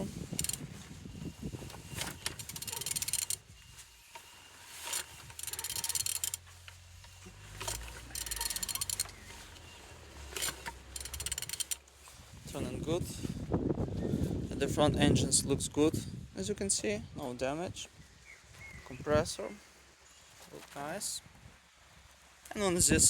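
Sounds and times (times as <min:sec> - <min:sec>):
ratchet wrench clicking: 0:00.3 - 0:00.6, 0:02.0 - 0:03.4, 0:04.9 - 0:06.8, 0:07.5 - 0:09.6, 0:10.3 - 0:11.8.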